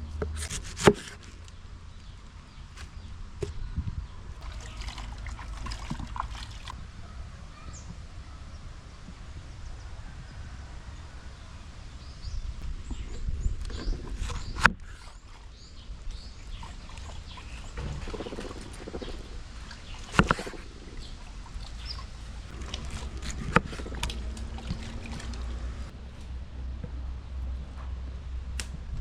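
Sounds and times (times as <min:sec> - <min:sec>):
sharp knocks: 0:17.8 - 0:19.3.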